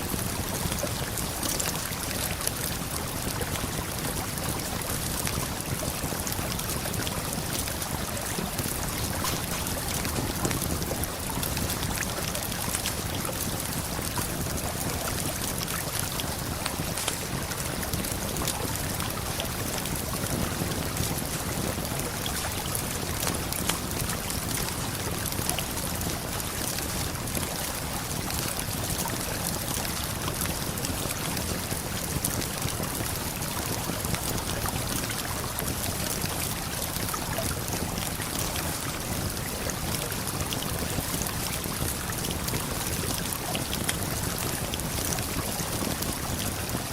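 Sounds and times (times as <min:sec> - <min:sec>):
flowing river water: 0:00.0 - 0:46.9
campfire crackling: 0:08.6 - 0:14.6.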